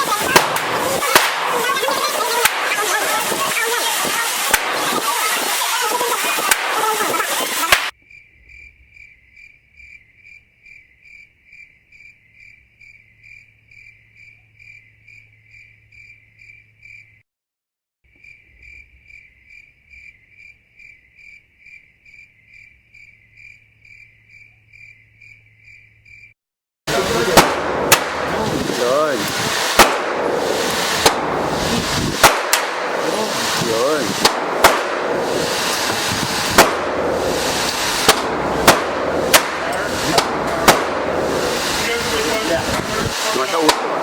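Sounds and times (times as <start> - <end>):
cricket chirping: 7.9 - 17.2, 18.1 - 26.4.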